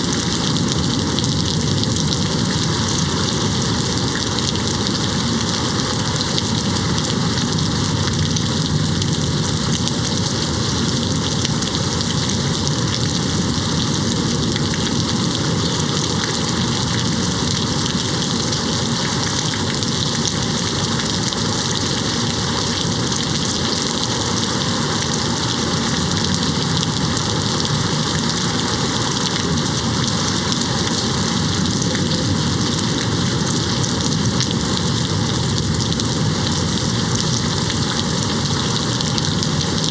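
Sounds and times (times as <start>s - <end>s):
rain hitting a window: 0.0s - 39.9s.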